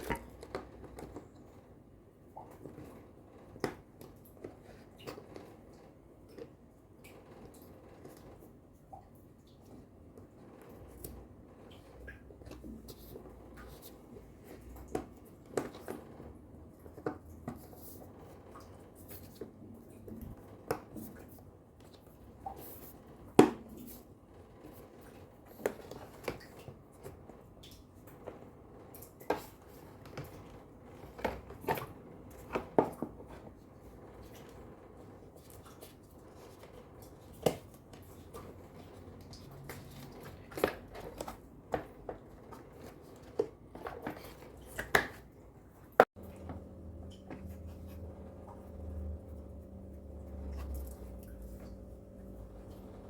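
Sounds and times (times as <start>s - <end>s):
steady low hum with held tones: 45.4s - 53.0s.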